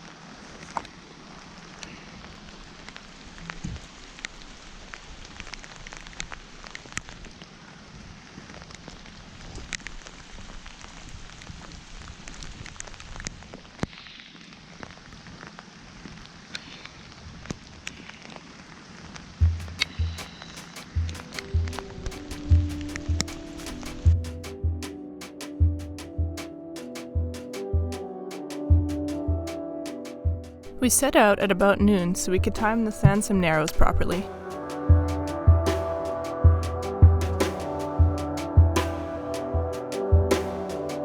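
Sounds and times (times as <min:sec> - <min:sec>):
rain hiss: 0:00.0 - 0:24.6
low thumps: 0:19.4 - 0:24.8.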